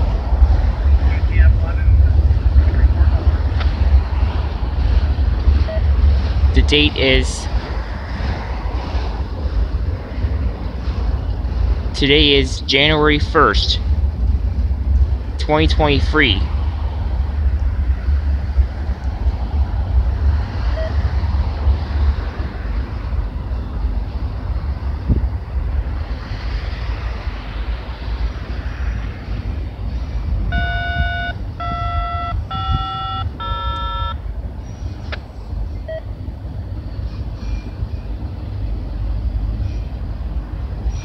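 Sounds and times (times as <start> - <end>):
freight train rumbling: 0.0 - 41.0
short electronic beeps: 30.5 - 34.2.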